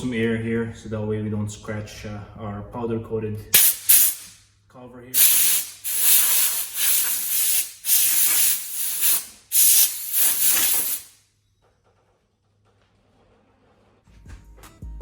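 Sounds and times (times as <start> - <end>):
compressed air hissing blasts: 3.6 - 4.4, 5.2 - 11.2.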